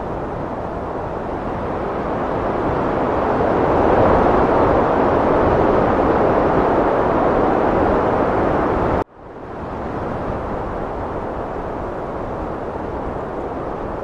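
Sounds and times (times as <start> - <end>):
heavy wind blowing: 0.0 - 14.0.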